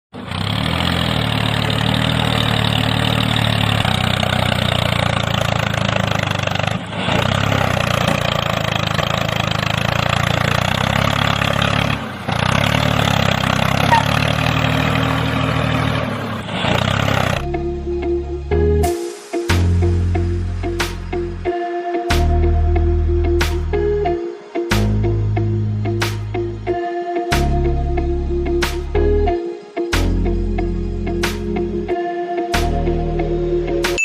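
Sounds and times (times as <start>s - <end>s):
engine running steadily: 0.2s - 17.5s.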